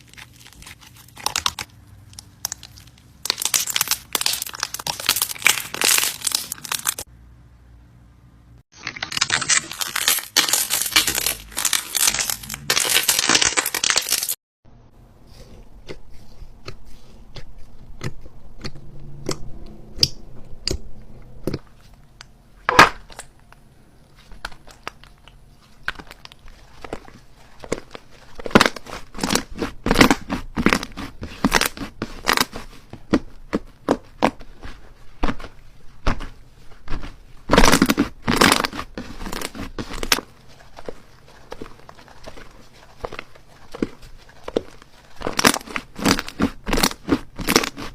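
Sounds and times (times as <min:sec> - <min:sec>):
slime crackling and popping: 0:00.0 - 0:07.1, 0:08.8 - 0:14.4, 0:24.4 - 0:47.9.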